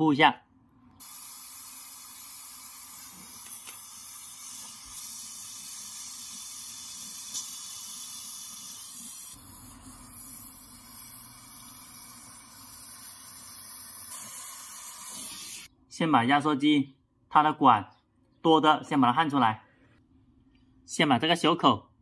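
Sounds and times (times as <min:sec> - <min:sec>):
gas torch flame hissing: 0:01.0 - 0:15.7.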